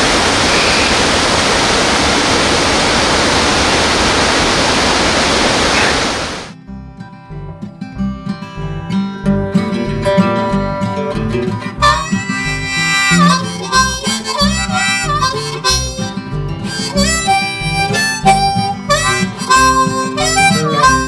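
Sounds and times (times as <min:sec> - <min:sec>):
strummed acoustic guitar: 0:06.6 - 0:21.0
harmonica solo: 0:11.5 - 0:21.0.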